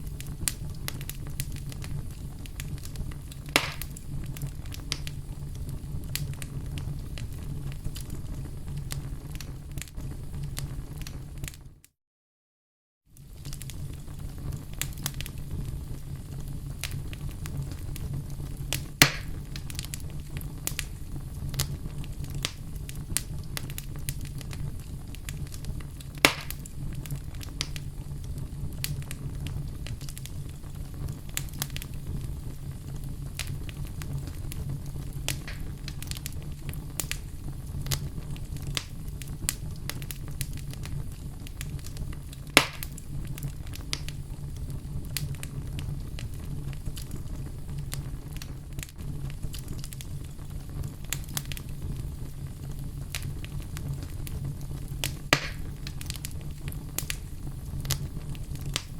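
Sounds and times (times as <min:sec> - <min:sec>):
wood fire rumbling and crackling: 0:00.0 - 0:11.9, 0:13.1 - 0:58.9
loud wood pops: 0:03.6 - 0:03.9, 0:19.0 - 0:19.4, 0:26.2 - 0:26.6, 0:35.3 - 0:35.7, 0:42.6 - 0:43.0, 0:55.3 - 0:55.7.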